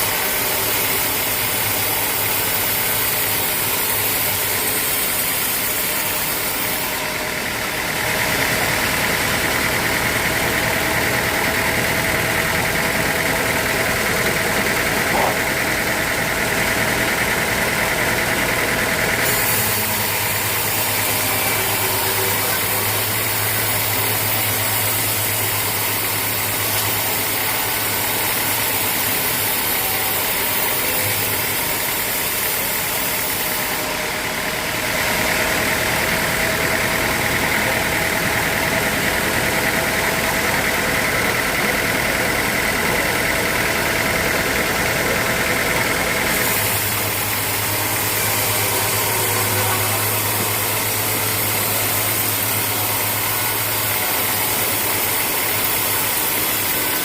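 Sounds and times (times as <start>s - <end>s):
sawmill machinery low hum: 0.0s - 57.0s.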